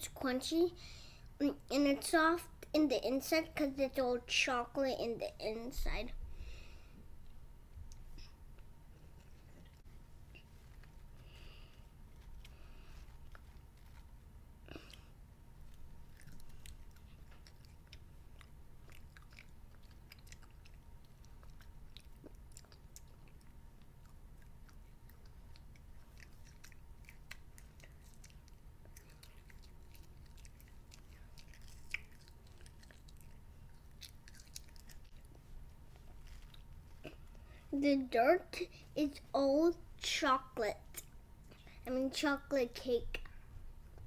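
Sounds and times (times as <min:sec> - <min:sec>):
child chewing: 0:06.4 - 0:37.8
wet mouth clicks and smacks: 0:16.2 - 0:35.2.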